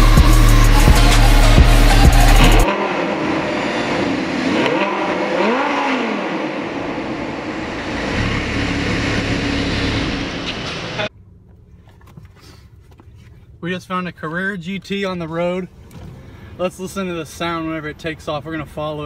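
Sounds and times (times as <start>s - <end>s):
car engine revving: 0.0s - 12.1s.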